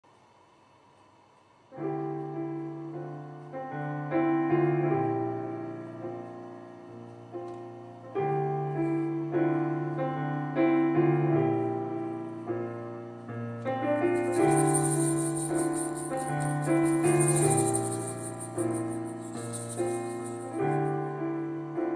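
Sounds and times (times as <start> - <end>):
piano chords: 1.8 - 21.9
high shimmering rattle: 14.0 - 21.2.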